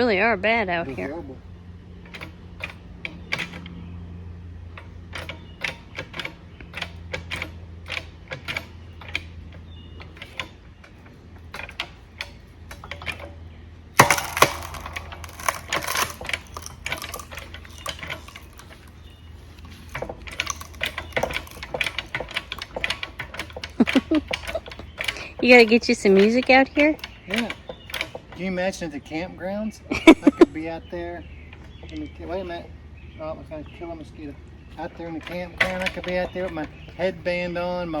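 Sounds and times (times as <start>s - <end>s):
hydraulic pump clicking and clacking: 1.9s - 3.9s, 4.5s - 32.6s, 34.6s - 38.0s
wood cracking and splitting: 11.5s - 28.6s.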